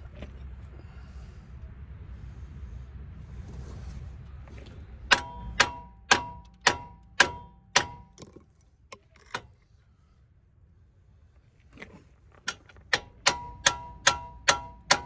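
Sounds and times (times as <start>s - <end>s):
sharp metallic strikes: 5.1s - 8.2s.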